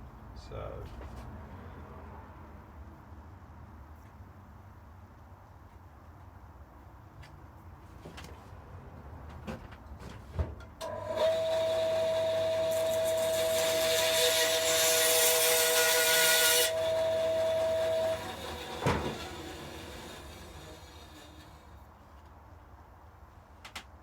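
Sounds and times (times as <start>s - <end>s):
small power tool whining: 10.8s - 21.8s.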